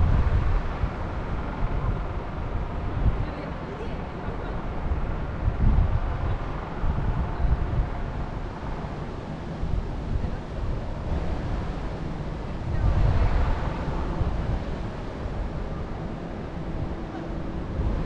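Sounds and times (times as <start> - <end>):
wind buffeting microphone: 0.0 - 18.0
wind gusting through trees: 0.0 - 18.0.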